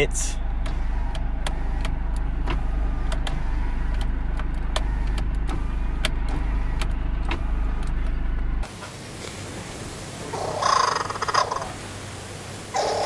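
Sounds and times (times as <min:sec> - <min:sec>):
car engine idling: 0:00.0 - 0:13.0
sharp irregular clicks: 0:00.6 - 0:08.2.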